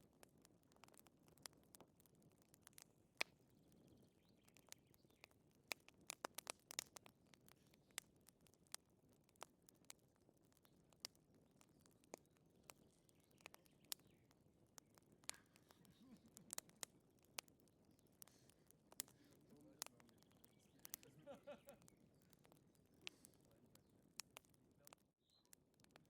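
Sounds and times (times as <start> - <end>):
wood fire crackling and popping: 0.0 - 26.0
faint low hiss: 11.6 - 25.4.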